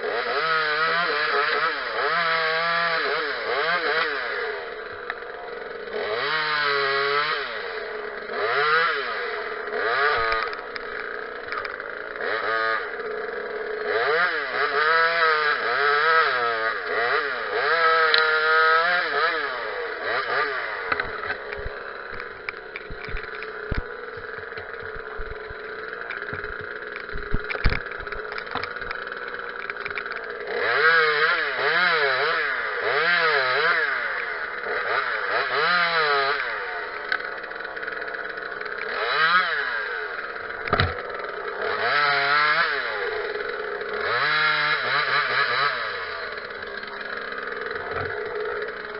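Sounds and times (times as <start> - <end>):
chainsaw revving: 0.0 - 48.9
sharp knocks: 40.7 - 41.0.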